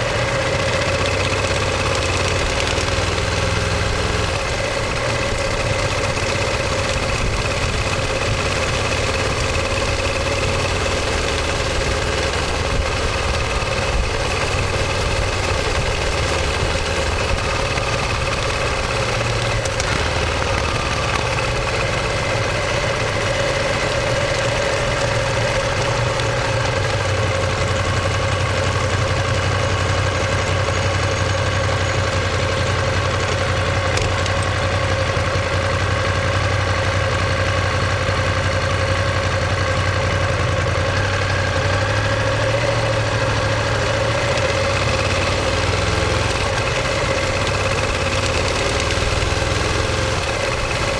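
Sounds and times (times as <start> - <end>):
motorcycle engine running steadily: 0.0 - 50.9.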